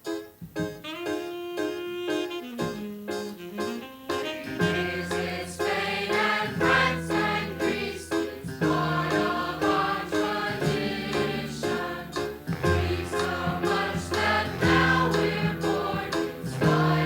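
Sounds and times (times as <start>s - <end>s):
band accompaniment: 0.0s - 17.0s
vocal group singing in harmony: 4.6s - 17.0s.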